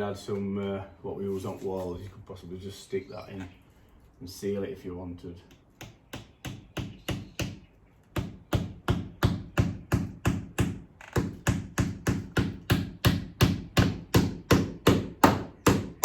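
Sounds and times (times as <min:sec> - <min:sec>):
hammer driving a nail: 0:05.8 - 0:16.0.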